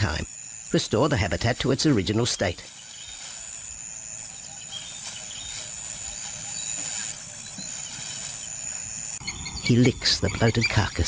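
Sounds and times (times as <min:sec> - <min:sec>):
high-pitched insect drone: 0:00.0 - 0:11.0
faint bird chirps: 0:04.2 - 0:11.0.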